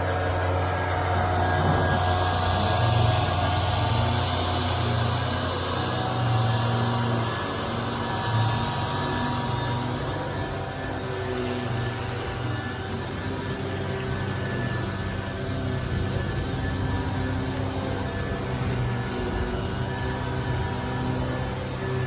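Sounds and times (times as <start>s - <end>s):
power sander on metal: 0.0s - 22.0s.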